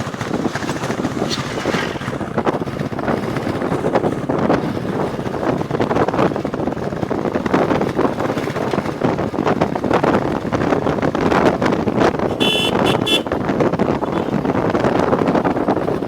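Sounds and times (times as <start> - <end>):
motorcycle running: 0.0 - 16.0
wind buffeting microphone: 0.0 - 16.0
horn toots: 12.2 - 13.4, 14.0 - 14.4.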